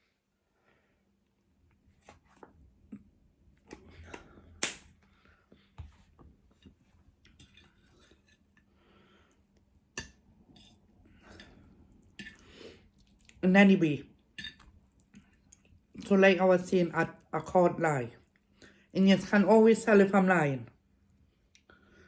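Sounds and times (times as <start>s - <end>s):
person chewing: 10.5s - 13.4s.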